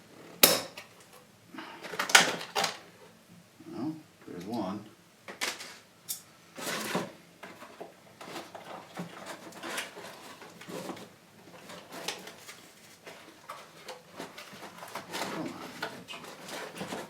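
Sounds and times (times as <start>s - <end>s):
packaging rustling: 6.6s - 17.0s.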